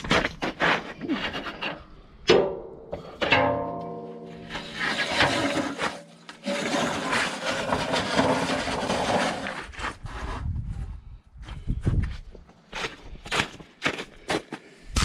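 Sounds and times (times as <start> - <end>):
metallic clang ringing: 2.3 - 4.7
metal scraping and grating: 3.2 - 10.3.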